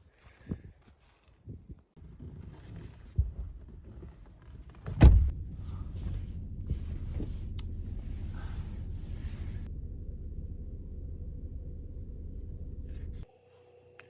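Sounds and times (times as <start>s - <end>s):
car door shutting with thud: 4.9s - 5.3s
low rumble: 5.0s - 13.3s.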